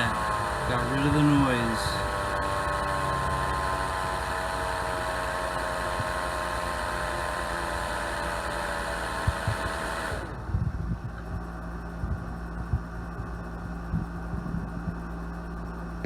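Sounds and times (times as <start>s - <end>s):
blade motor whine: 0.0s - 10.6s.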